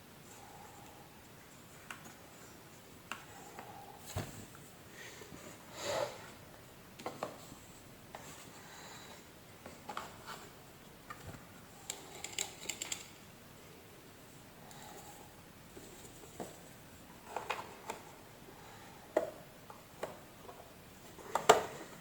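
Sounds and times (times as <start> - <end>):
small parts clicking and tapping: 11.1 - 13.2.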